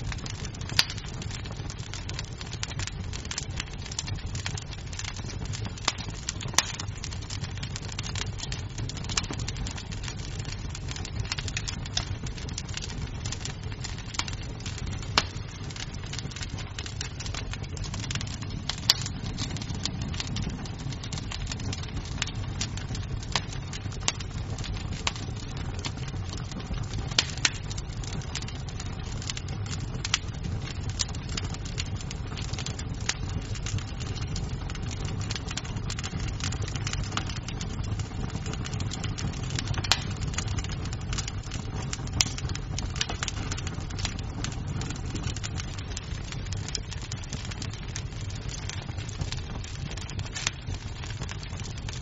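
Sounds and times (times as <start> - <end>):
burning wood popping: 0.0 - 52.0
fire crackling: 0.0 - 52.0.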